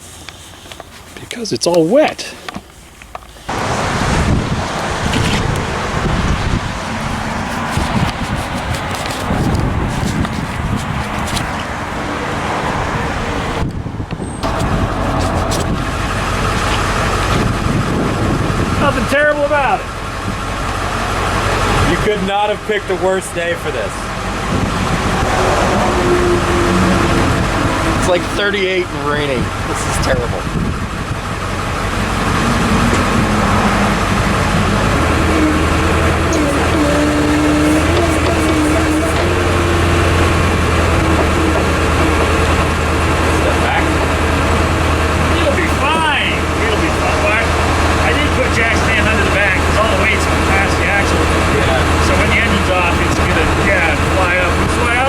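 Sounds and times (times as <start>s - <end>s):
engine idling: 14.4s - 55.0s.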